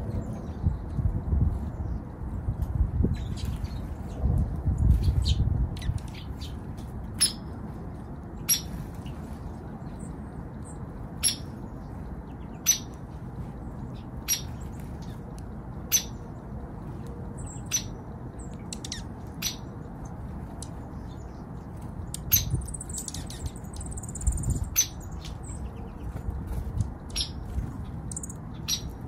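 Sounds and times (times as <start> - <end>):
high bird twittering: 22.1 - 25.7, 28.1 - 29.0.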